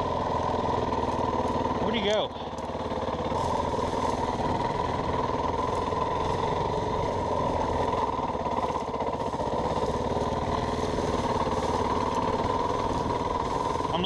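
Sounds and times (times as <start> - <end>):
dirt bike engine running: 0.0 - 14.0.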